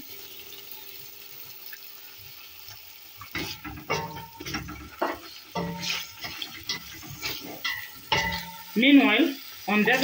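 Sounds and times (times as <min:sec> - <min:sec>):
meat sizzling in oil: 0:00.0 - 0:10.0
wooden spoon scraping pot: 0:03.2 - 0:08.7.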